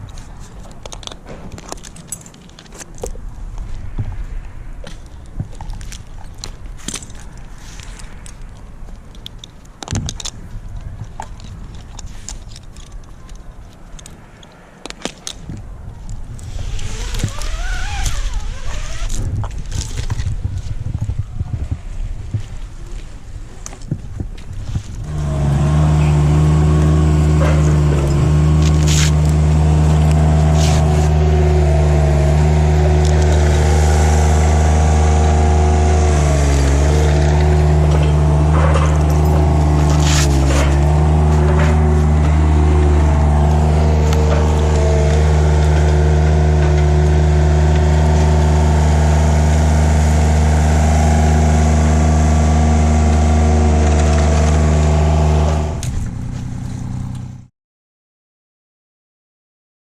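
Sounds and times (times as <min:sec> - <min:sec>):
engine running steadily: 0:24.8 - 0:57.5.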